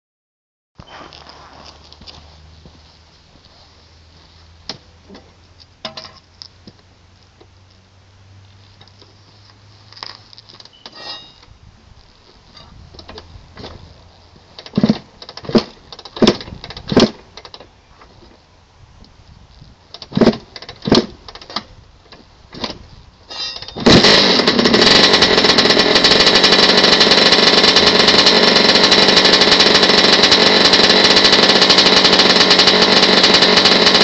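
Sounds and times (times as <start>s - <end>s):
dirt bike kick-start strokes: 0.8s - 2.0s, 14.5s - 18.3s, 19.9s - 34.0s.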